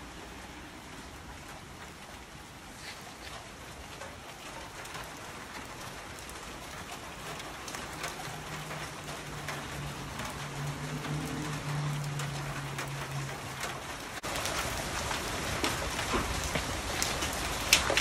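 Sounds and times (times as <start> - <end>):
rain on wet pavement: 0.0 - 18.0.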